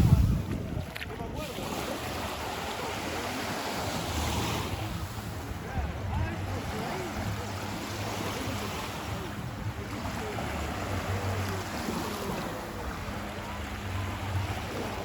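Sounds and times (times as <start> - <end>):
faint distant voices: 0.0 - 15.0
ocean waves washing on shore: 0.0 - 15.0
wind on microphone: 0.0 - 15.0.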